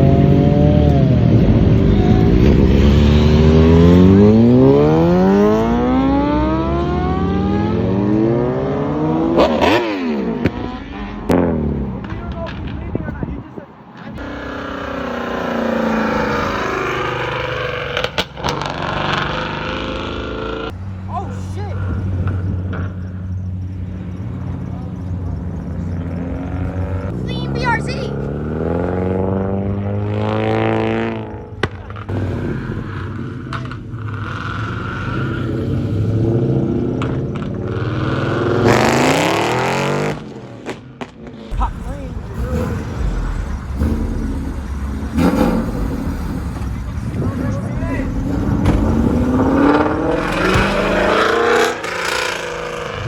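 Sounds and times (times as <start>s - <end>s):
car engine revving: 0.0s - 13.0s, 13.8s - 53.0s
vehicle engine running: 21.9s - 28.3s, 41.5s - 53.0s.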